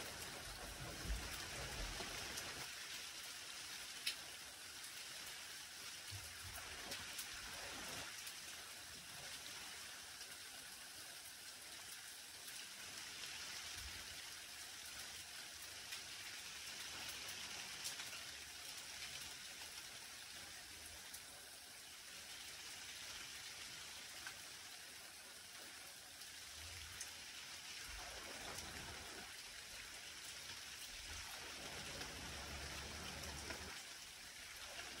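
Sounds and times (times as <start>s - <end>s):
light rain on foliage: 0.0s - 35.0s
raindrop taps: 0.1s - 2.7s, 31.8s - 33.8s.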